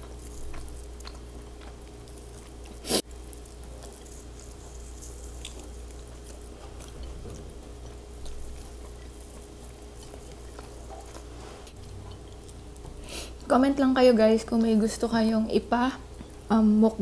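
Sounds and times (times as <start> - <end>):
close-up chewing: 0.0 - 13.5
faint steady hum: 0.0 - 17.0.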